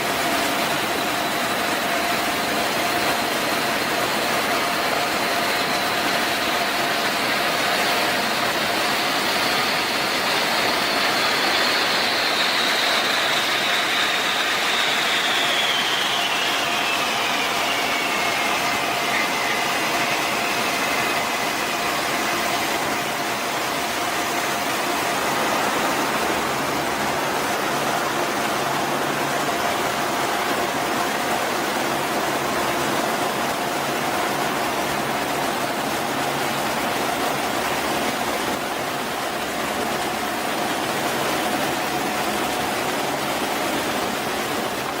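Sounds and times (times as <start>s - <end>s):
jet engine roar and whine: 0.0s - 45.0s.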